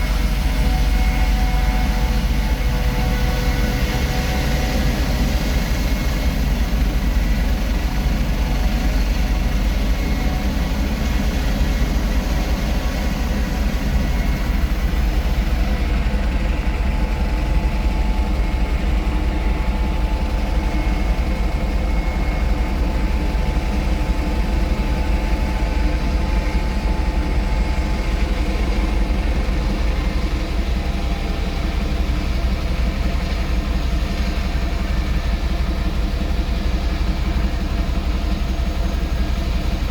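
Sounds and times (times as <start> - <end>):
helicopter rotor rumble: 0.0 - 39.9
turbine whine: 0.0 - 39.9.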